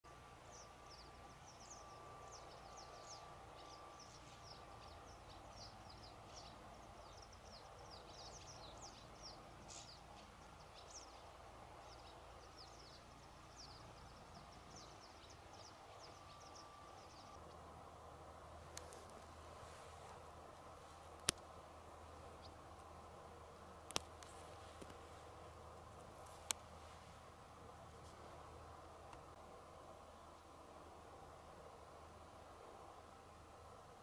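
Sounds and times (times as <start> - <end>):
faint bird chirps: 0.1 - 17.7
low steady background: 0.1 - 34.0.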